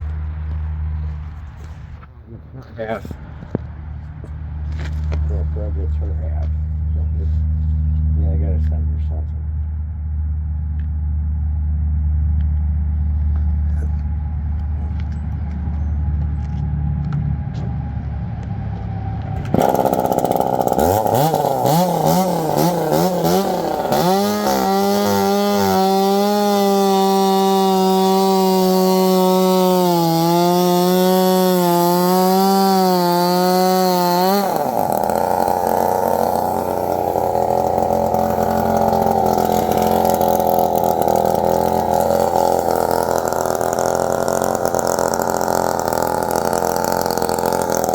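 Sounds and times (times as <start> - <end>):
low engine rumble: 0.0 - 47.9
chainsaw revving: 19.4 - 47.9.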